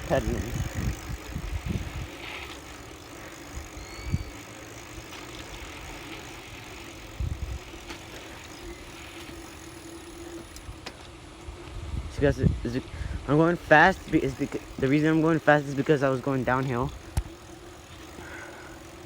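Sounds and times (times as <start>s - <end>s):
wind buffeting microphone: 0.0s - 4.4s, 7.0s - 9.1s, 11.4s - 14.9s
bicycle tyre hum: 0.0s - 19.0s.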